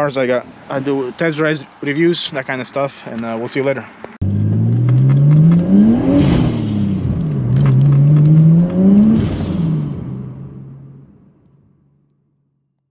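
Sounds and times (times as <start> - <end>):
car engine accelerating: 4.2 - 11.6.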